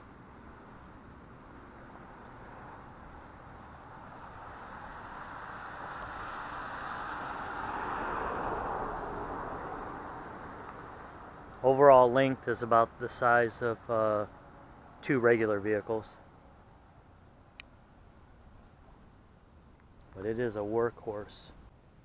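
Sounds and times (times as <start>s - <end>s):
vehicle passing by: 1.5s - 11.7s.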